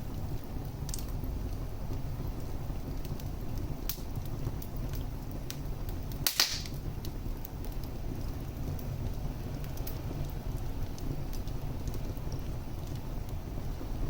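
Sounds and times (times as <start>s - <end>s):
fire crackling: 0.0s - 14.0s
fire flames rumbling: 0.0s - 14.0s
loud sharp pop: 6.2s - 6.8s.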